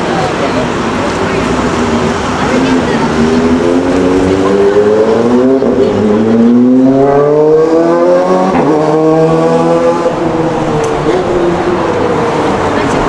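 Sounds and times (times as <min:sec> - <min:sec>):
vehicle engine accelerating: 0:00.0 - 0:13.0.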